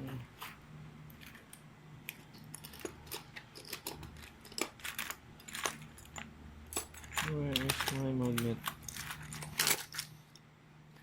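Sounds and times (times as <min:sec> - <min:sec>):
low steady hum: 0:00.0 - 0:11.0
tools clicking and clattering: 0:02.1 - 0:10.2.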